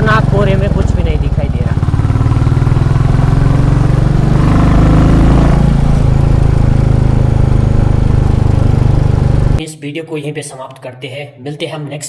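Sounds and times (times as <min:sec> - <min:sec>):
motorcycle engine thudding: 0:00.0 - 0:09.6.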